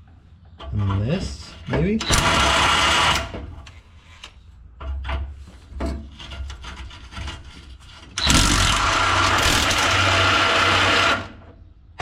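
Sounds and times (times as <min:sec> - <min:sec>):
tools scraping rusted metal: 0:04.9 - 0:08.2
handheld power tool running: 0:08.2 - 0:11.3.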